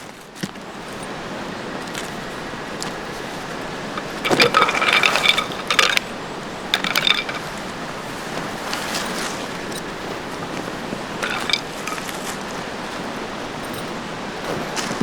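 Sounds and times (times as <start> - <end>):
metal tent hardware clinking: 1.8 - 15.0.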